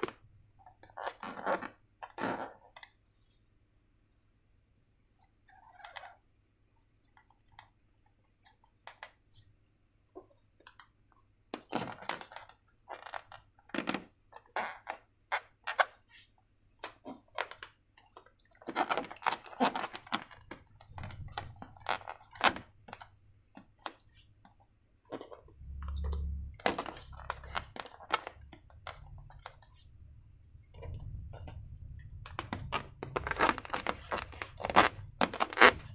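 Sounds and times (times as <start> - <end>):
low thumps: 25.5 - 35.9
hands crinkling materials: 26.6 - 35.9.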